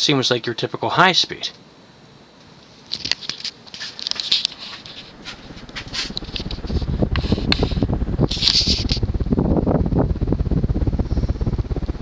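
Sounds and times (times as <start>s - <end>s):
ceiling fan running: 0.0s - 12.0s
light clicks and rustles: 2.4s - 7.7s
wind buffeting microphone: 5.1s - 12.0s.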